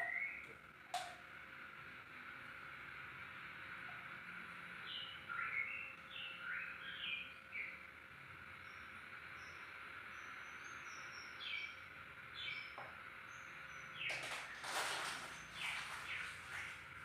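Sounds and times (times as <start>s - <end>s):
bird chirping calls: 0.0s - 0.6s, 4.7s - 17.0s.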